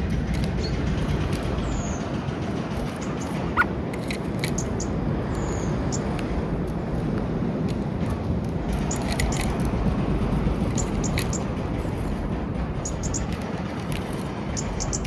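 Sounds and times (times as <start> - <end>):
low outdoor rumble: 0.0 - 15.0
birds pecking at feeder: 8.7 - 15.0.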